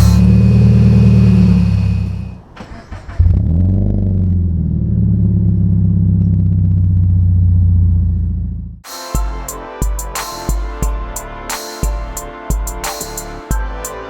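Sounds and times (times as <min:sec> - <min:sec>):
car exhaust at low revs: 0:00.0 - 0:02.5, 0:03.2 - 0:08.8.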